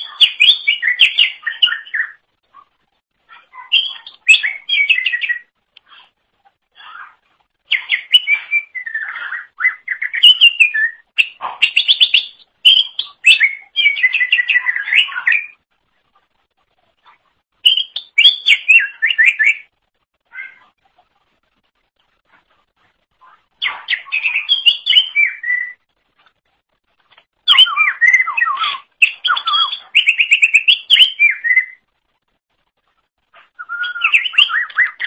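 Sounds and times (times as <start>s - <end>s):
bird singing whistled notes: 0.0s - 2.2s, 3.6s - 5.5s, 7.7s - 15.6s, 17.6s - 19.7s, 23.6s - 25.8s, 27.4s - 31.8s, 33.5s - 35.0s.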